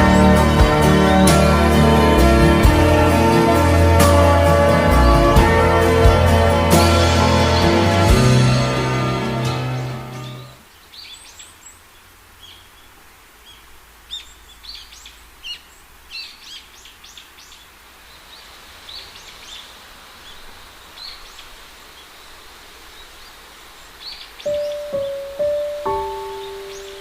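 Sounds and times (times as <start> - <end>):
steady outdoor hiss: 0.0 - 27.0
small birds chirping: 9.3 - 27.0.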